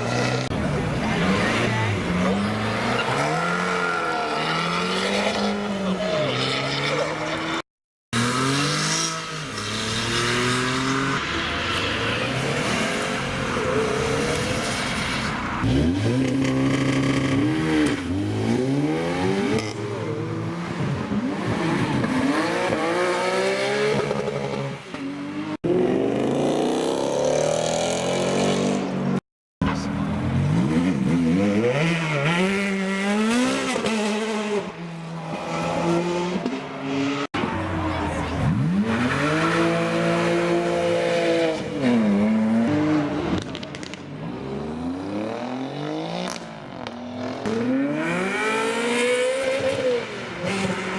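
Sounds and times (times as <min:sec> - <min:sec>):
sports car engines revving: 0:29.7 - 0:50.9.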